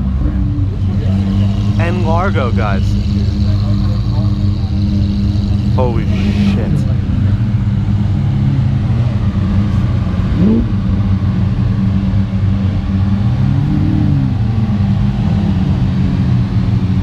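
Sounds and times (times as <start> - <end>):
car engines droning: 0.0 - 17.0
engine revving blip: 5.0 - 6.9.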